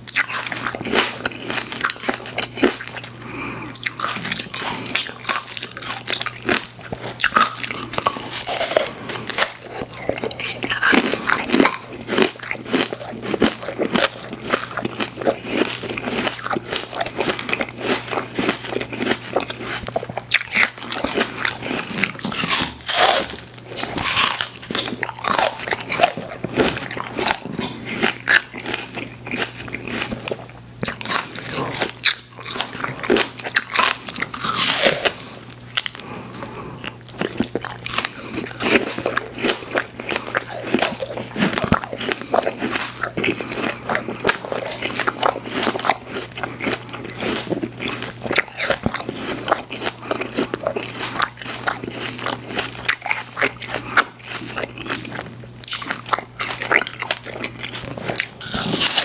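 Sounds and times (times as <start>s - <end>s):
crunchy chewing of sweets: 0.0s - 59.0s.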